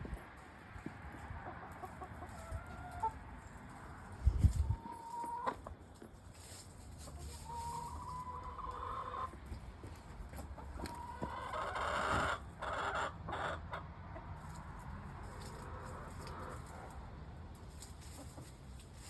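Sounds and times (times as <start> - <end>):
hens clucking: 0.8 - 19.0
hens calling: 4.3 - 5.8, 7.0 - 14.6.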